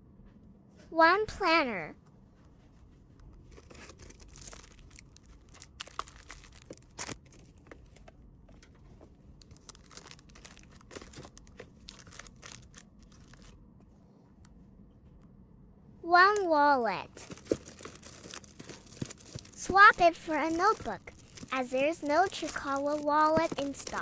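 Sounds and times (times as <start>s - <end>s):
plastic packaging crinkling: 3.5s - 8.7s, 9.4s - 13.6s, 17.1s - 24.0s.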